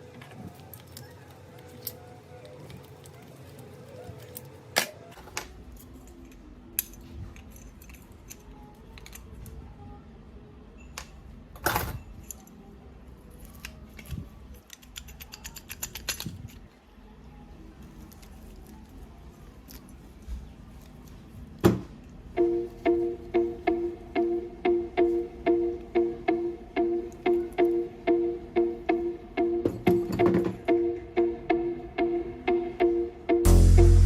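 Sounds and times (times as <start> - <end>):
metal parts and tools clinking: 4.0 - 9.4, 13.6 - 16.7
plucked-string background music: 22.4 - 34.0.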